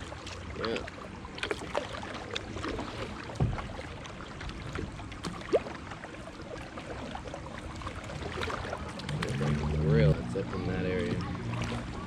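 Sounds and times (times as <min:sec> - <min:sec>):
water sloshing around kayak: 0:00.0 - 0:12.0
low thump: 0:03.4 - 0:03.8.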